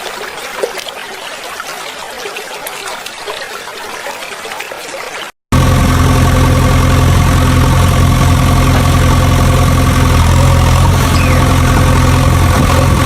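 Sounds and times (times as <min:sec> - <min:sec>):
truck engine idling: 0:05.5 - 0:13.0.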